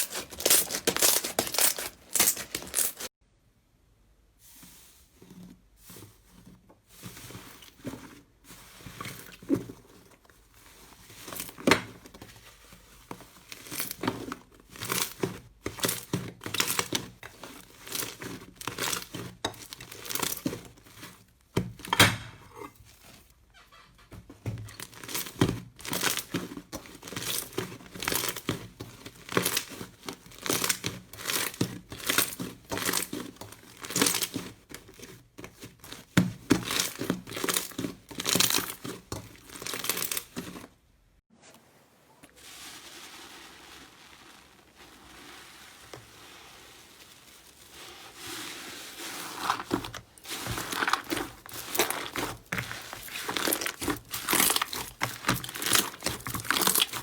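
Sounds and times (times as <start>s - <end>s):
slime crackling and popping: 0.0s - 3.1s, 49.4s - 57.0s.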